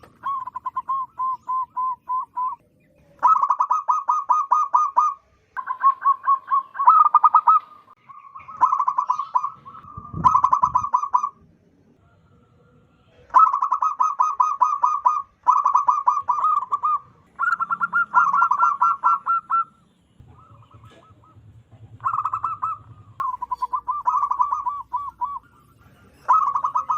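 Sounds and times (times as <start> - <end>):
dove cooing: 0.0 - 11.4, 13.1 - 26.9.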